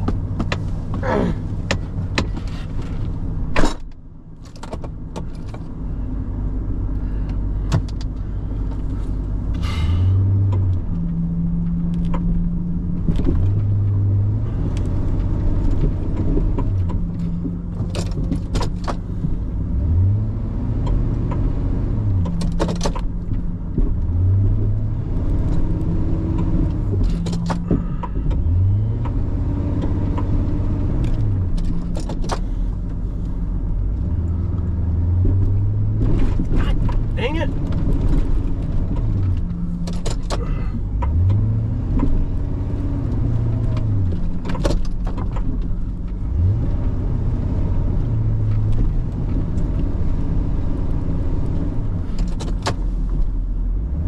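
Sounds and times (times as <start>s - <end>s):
truck engine revving: 24.0s - 32.6s, 33.3s - 44.4s, 45.4s - 52.2s.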